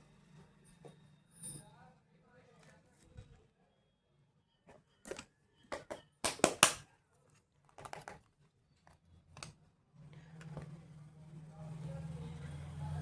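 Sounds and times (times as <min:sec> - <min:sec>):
clicks and taps of makeup box: 0:05.1 - 0:06.8, 0:07.7 - 0:08.2.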